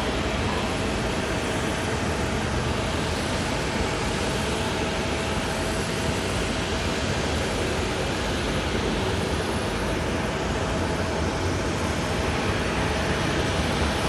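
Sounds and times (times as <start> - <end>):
jet aircraft noise: 0.0 - 14.0.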